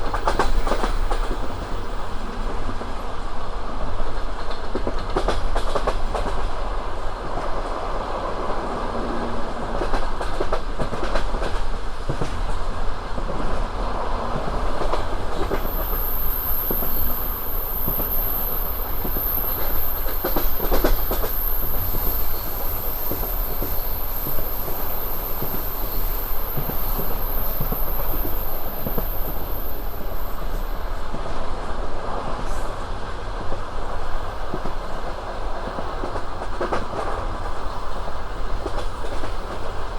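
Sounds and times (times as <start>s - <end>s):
train rumble: 0.0s - 39.9s
train wheels clattering on rails: 0.0s - 39.9s
thin high-pitched whine: 15.5s - 30.8s.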